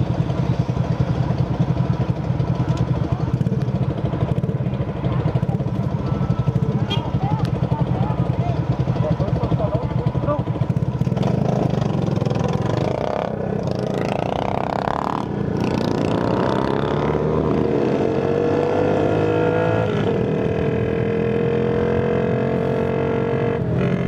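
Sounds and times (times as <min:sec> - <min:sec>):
small motorcycle engine running: 0:00.0 - 0:17.3.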